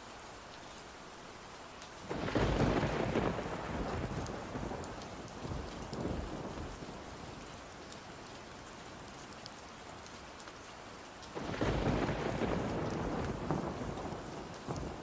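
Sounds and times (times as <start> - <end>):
steady rain: 0.0 - 15.0
thunder rumbling: 2.1 - 6.8, 11.4 - 15.0.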